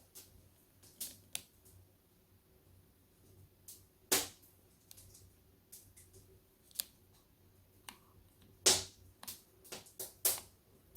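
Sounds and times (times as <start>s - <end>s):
wood fire crackling and popping: 8.6s - 10.5s.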